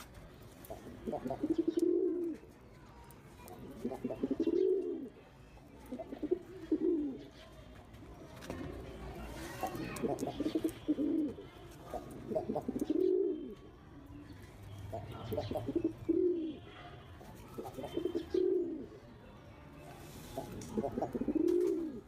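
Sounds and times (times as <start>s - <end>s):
pigeon cooing: 0.7s - 2.4s, 3.5s - 5.1s, 5.9s - 7.4s, 9.7s - 13.6s, 14.9s - 16.7s, 17.6s - 19.0s, 20.3s - 22.0s.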